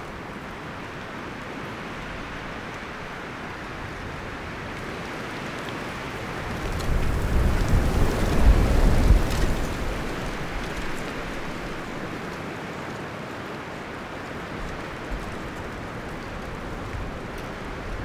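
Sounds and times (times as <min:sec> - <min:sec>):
wind rustling leaves and branches: 0:00.0 - 0:18.0
low rumble of gusts: 0:05.9 - 0:12.4, 0:14.6 - 0:18.0.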